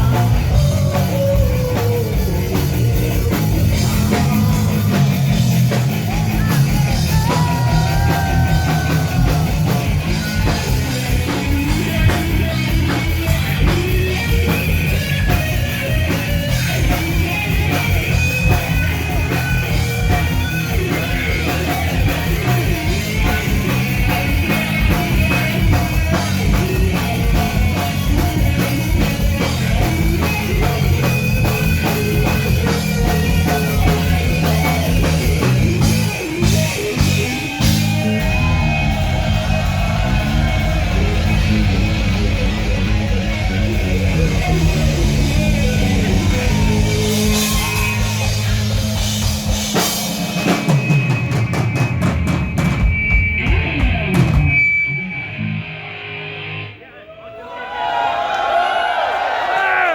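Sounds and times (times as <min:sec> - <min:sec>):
person singing: 0:00.0 - 0:02.7
drum kit: 0:00.0 - 0:55.7
electric guitars: 0:00.0 - 0:56.8.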